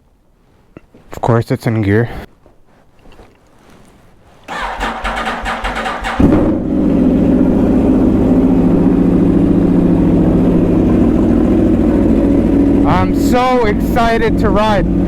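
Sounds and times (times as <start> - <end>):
engine starter cranking: 4.5 - 6.6
motorcycle engine idling: 4.5 - 15.0.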